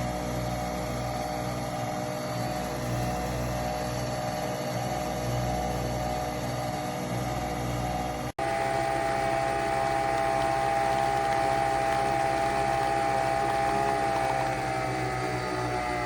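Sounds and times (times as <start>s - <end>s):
coffee machine motor whirring: 0.0s - 16.0s.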